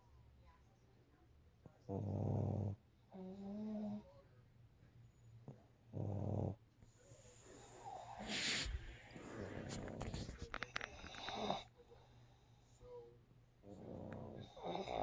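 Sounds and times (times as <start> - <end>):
dog snoring: 1.9 - 4.0, 5.9 - 6.6, 7.4 - 11.7, 13.6 - 15.0.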